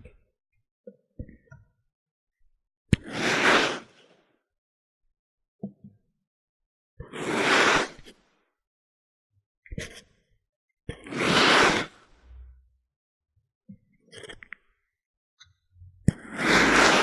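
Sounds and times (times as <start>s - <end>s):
sand crackle: 16.4s - 17.0s
sand crunching swishes: 16.4s - 17.0s.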